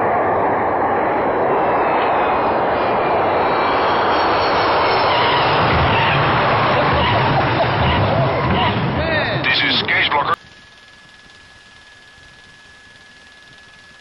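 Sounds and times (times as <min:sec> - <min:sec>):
deep rumble: 0:00.0 - 0:10.2
airplane engines running: 0:00.0 - 0:14.0.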